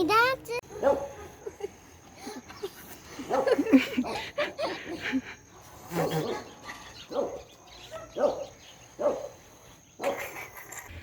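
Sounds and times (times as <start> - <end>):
dog barking: 0.7 - 1.2, 3.3 - 3.6, 7.1 - 9.4.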